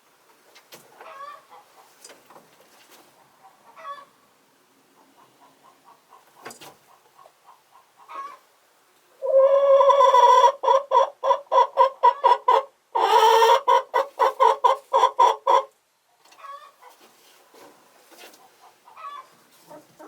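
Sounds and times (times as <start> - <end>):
chicken cackling: 1.0 - 2.0, 3.2 - 4.3, 4.9 - 8.5, 9.2 - 15.8, 16.4 - 17.0, 18.4 - 20.0.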